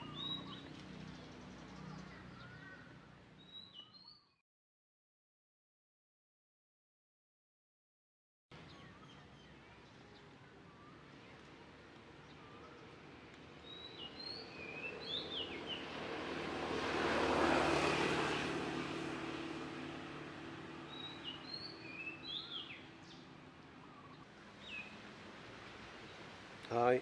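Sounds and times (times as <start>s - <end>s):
small birds chirping: 0.0s - 4.4s, 8.6s - 16.0s, 20.8s - 25.0s
engine passing by: 14.0s - 26.5s.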